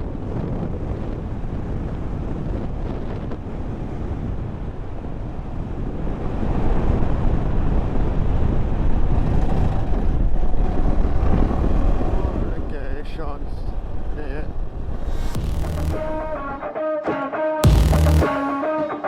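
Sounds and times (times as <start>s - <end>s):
wind buffeting microphone: 0.0s - 16.6s
vehicle rumble and roar: 6.0s - 16.6s.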